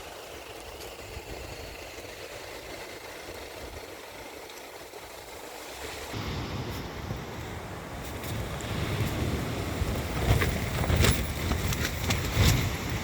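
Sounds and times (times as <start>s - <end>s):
steady outdoor hiss: 0.0s - 13.0s
wind buffeting microphone: 5.9s - 13.0s.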